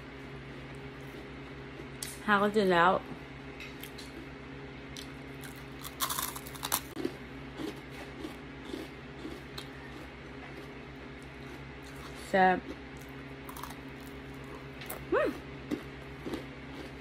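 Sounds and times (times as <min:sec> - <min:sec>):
soft chewing: 0:03.7 - 0:17.0
crisp crunching bites: 0:05.4 - 0:10.0, 0:13.0 - 0:15.0.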